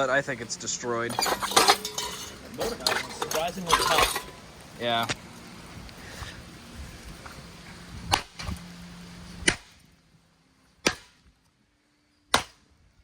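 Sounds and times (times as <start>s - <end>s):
low steady hum: 0.0s - 13.0s
blows smashing metal housing: 1.0s - 4.5s.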